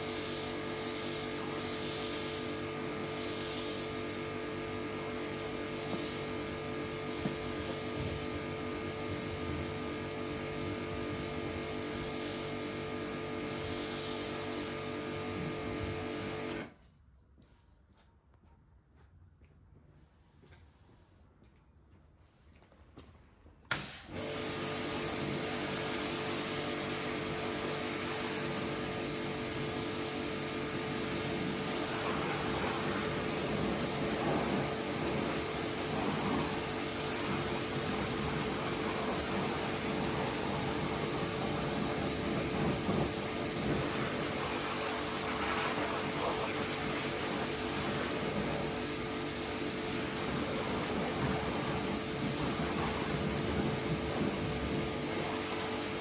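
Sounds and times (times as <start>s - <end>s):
pressure washer motor hum: 0.0s - 16.7s, 23.7s - 56.0s
water spray hissing: 30.8s - 56.0s.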